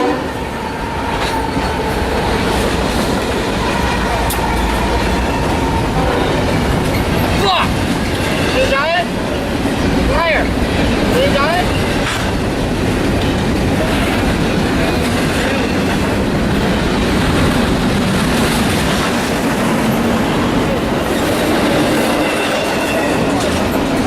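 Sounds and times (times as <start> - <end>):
train wheels clattering: 0.0 - 24.0
high wheel squeal: 3.6 - 7.4, 21.1 - 23.6.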